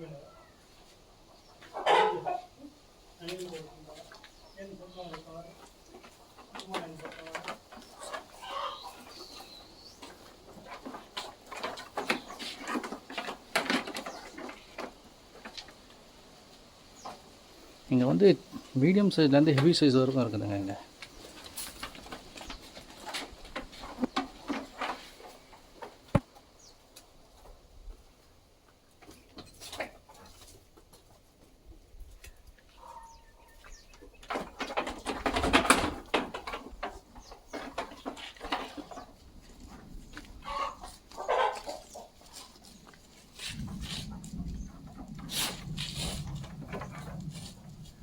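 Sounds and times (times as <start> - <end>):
sheep hoof steps: 19.6 - 26.8, 33.5 - 48.0.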